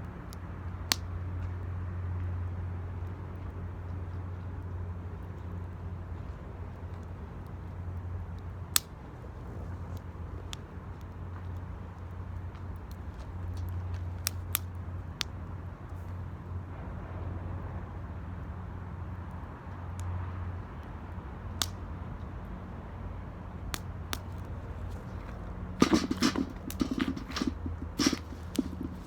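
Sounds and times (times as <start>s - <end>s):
low rumble of fire: 0.0s - 29.0s
wood fire crackling and popping: 8.3s - 16.0s, 23.7s - 29.0s.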